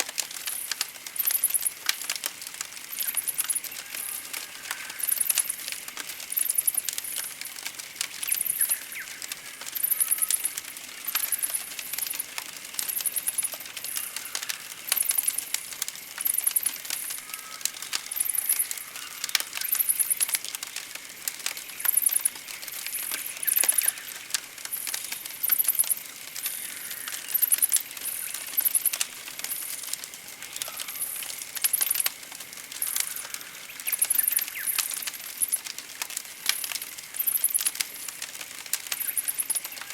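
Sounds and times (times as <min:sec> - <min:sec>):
campfire crackling and popping: 0:00.0 - 0:39.9
lower bird chirp: 0:08.2 - 0:12.2, 0:21.6 - 0:29.7, 0:32.8 - 0:35.6
birds singing high trills: 0:08.3 - 0:12.2.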